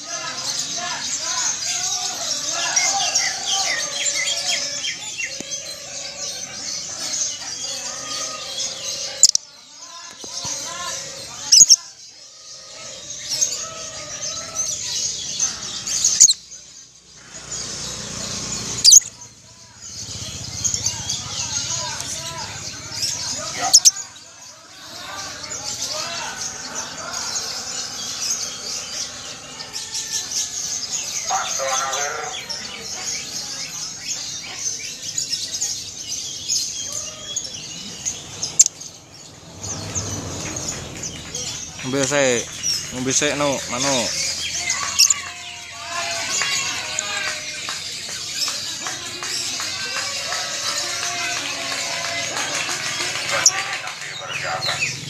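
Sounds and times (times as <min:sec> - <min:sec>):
songbirds chirping and singing: 0:00.0 - 0:55.0.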